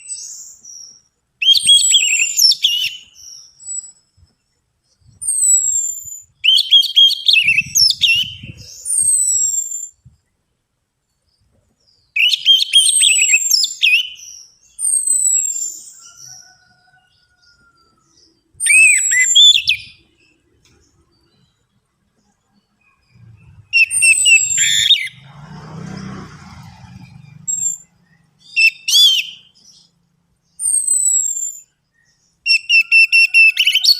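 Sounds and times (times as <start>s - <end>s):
thrush singing high whistles: 5.2s - 10.0s, 12.2s - 17.0s, 18.6s - 20.1s, 23.1s - 25.3s, 26.5s - 29.9s, 30.6s - 31.8s, 32.4s - 33.9s.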